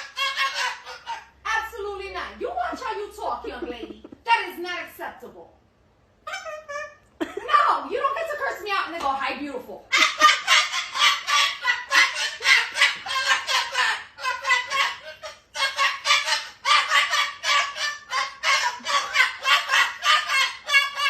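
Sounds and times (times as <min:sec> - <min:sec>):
parrot squawking rapidly: 0:00.0 - 0:04.4, 0:06.2 - 0:07.0, 0:09.9 - 0:21.0.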